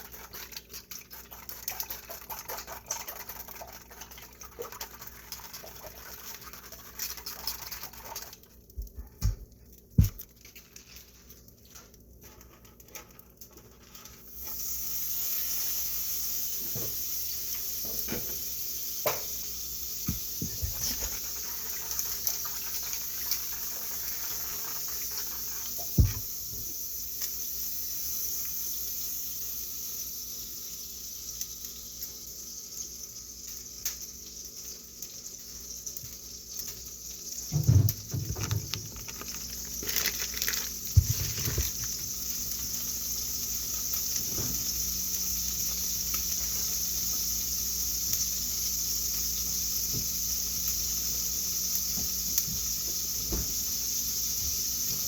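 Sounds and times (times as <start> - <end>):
food sizzling in a frying pan: 9.6 - 55.0
pans and utensils clattering: 37.4 - 39.2.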